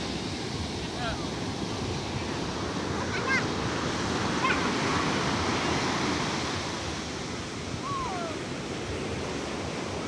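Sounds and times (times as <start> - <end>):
waves breaking: 0.0 - 10.0.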